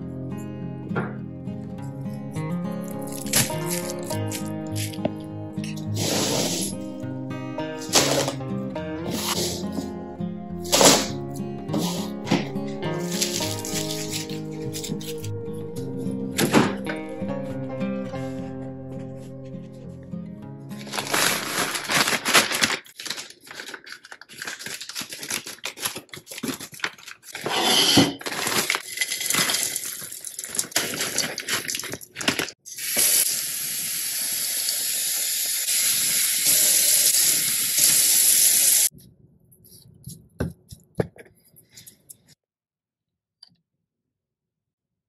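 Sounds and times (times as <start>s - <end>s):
wood chips rustling and clattering: 3.0s - 5.0s, 13.0s - 15.2s, 20.8s - 32.6s.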